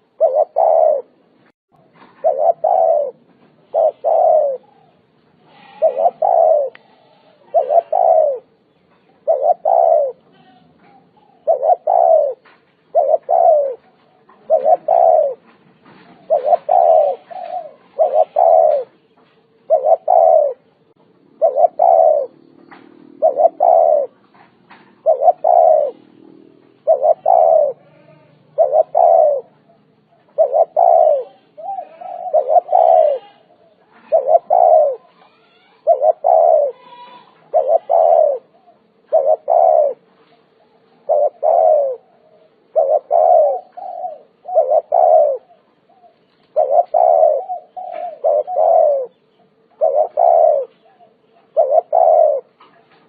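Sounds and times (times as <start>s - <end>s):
dove cooing: 0.0s - 53.0s.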